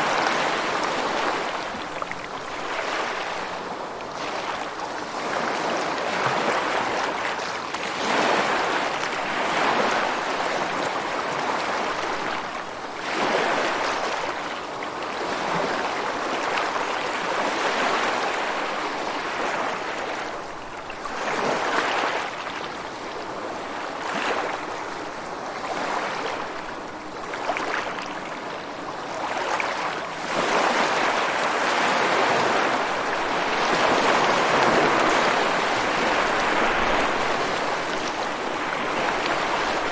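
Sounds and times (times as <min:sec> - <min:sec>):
ocean surf washing onto shore: 0:29.2 - 0:39.9.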